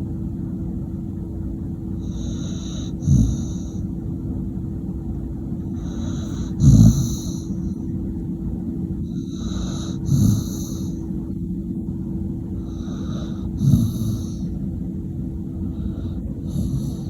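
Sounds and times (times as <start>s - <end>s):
steady low hum: 0.0s - 17.0s
dog snoring: 2.0s - 3.9s, 5.6s - 7.8s, 9.0s - 11.0s, 12.6s - 14.6s, 15.7s - 17.0s.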